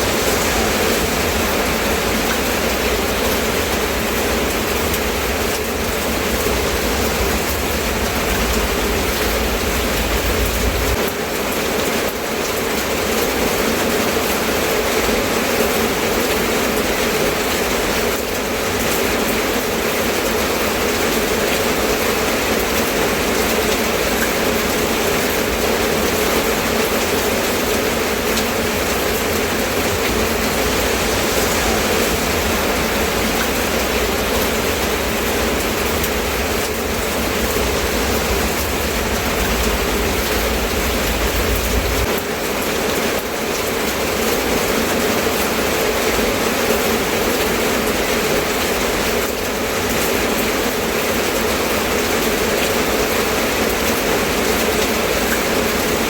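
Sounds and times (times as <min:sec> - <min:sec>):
low rumble: 0:00.0 - 0:11.1, 0:27.0 - 0:42.3
steady rain: 0:00.0 - 0:56.0.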